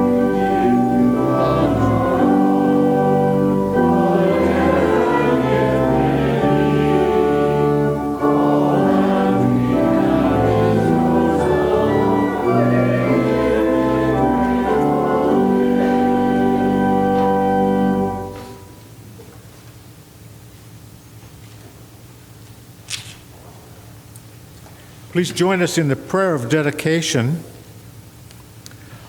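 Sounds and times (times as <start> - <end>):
voices singing a hymn: 0.0 - 18.7
church organ: 0.0 - 22.3, 24.8 - 28.1.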